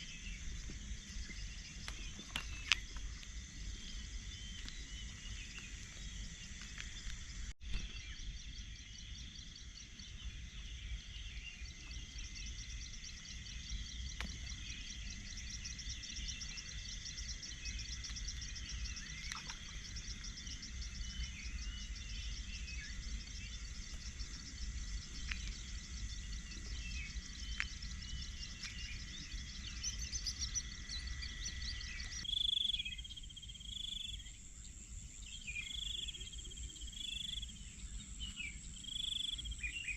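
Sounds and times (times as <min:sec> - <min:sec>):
birds chirping: 0:00.0 - 0:39.9
insects trilling: 0:00.0 - 0:39.9.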